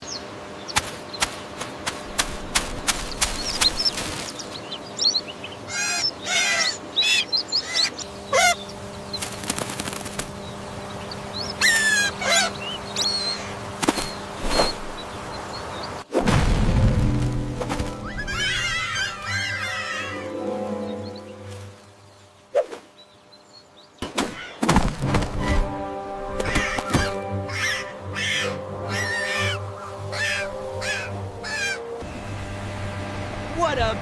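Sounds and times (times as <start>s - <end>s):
birds honking and chirping: 0.0s - 16.1s, 17.7s - 24.6s, 25.2s - 34.0s
wing flaps: 0.7s - 4.6s, 9.2s - 10.7s, 13.7s - 15.0s.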